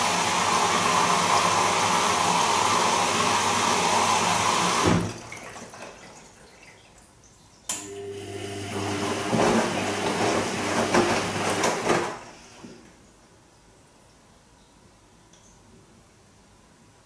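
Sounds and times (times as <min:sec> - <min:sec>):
washing machine motor humming: 0:00.0 - 0:05.9, 0:07.7 - 0:12.8.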